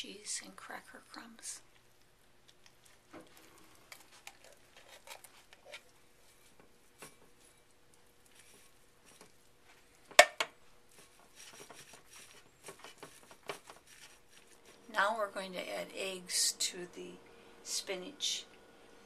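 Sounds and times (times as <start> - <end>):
soft rustling: 1.7 - 15.2.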